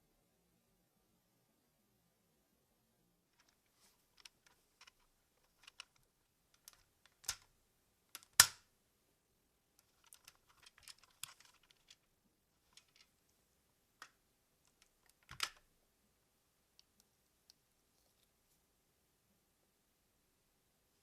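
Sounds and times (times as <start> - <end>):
plastic toy parts clicking: 4.2 - 7.5, 8.1 - 8.6, 9.8 - 12.0, 12.7 - 13.1, 14.0 - 15.6.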